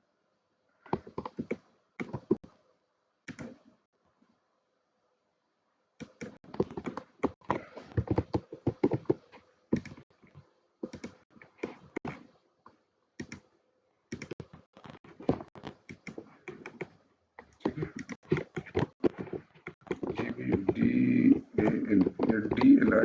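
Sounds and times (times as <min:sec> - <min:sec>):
keyboard typing: 0:00.9 - 0:02.5, 0:03.3 - 0:03.6, 0:06.0 - 0:10.1, 0:10.8 - 0:12.3, 0:13.2 - 0:13.5, 0:14.1 - 0:23.0.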